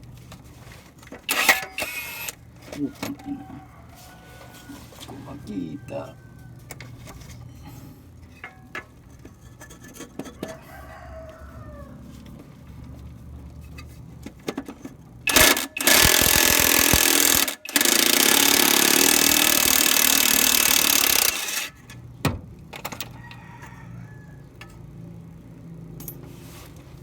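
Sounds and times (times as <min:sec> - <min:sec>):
rooster crowing: 0:02.8 - 0:06.8, 0:10.3 - 0:12.4, 0:23.1 - 0:24.8.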